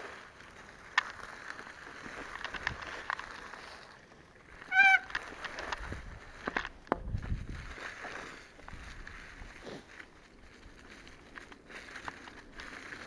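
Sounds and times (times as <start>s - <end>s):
short wavering honk: 4.7s - 5.2s.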